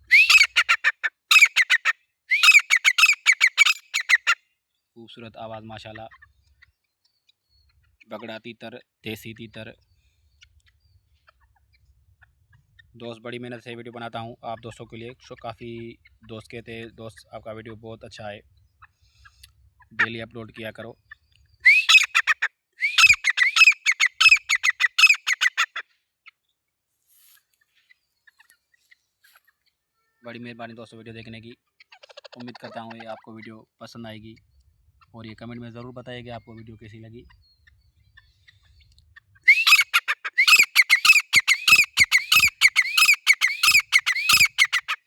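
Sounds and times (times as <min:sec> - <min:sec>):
francolin calling: 0:00.0 - 0:04.4, 0:21.6 - 0:25.8, 0:39.4 - 0:45.0.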